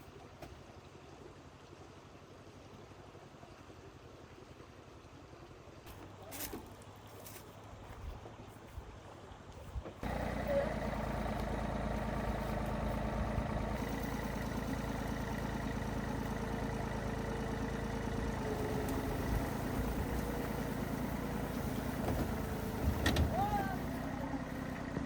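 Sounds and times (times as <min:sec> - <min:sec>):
vehicle engine idling: 0:10.0 - 0:25.0.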